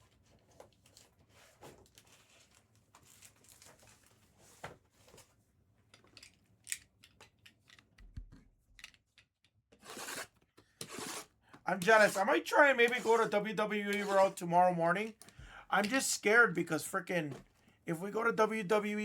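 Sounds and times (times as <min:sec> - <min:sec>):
plastic wrap crinkling and tearing: 0:01.9 - 0:04.2.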